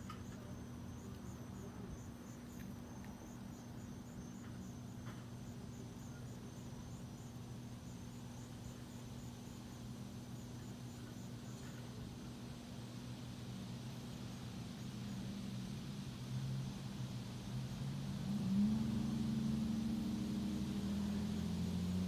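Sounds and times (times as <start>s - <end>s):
insect chirping: 0.0s - 22.0s
steady low hum: 0.0s - 22.0s.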